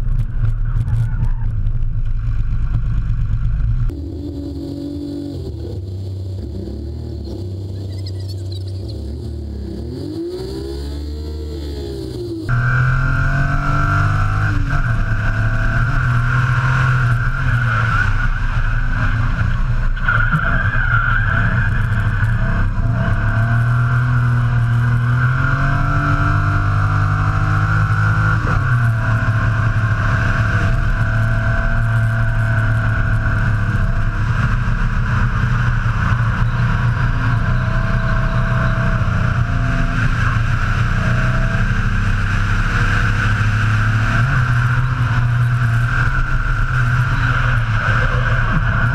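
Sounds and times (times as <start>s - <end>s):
engine revving at high revs: 9.0s - 17.4s.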